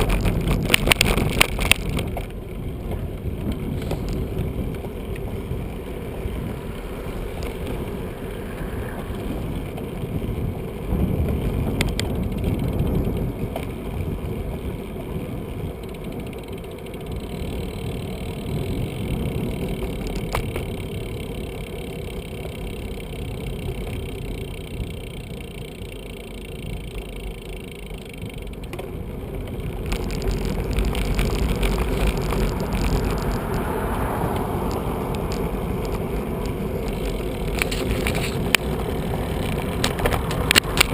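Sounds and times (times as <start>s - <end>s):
wind on microphone: 0.0s - 15.7s, 29.0s - 40.9s
tyres rumbling on road: 0.0s - 40.9s.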